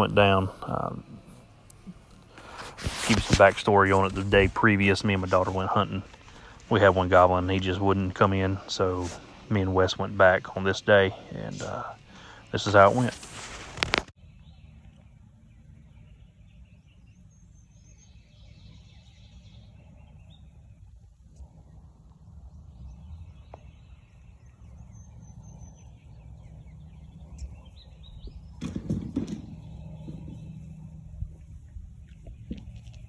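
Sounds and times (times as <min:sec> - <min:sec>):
small birds chirping: 0:00.0 - 0:33.0
handling noise: 0:01.7 - 0:09.5, 0:11.4 - 0:14.1, 0:28.2 - 0:33.0
sharp clicks and rustles: 0:11.6 - 0:14.2
wind rumble: 0:18.5 - 0:33.0.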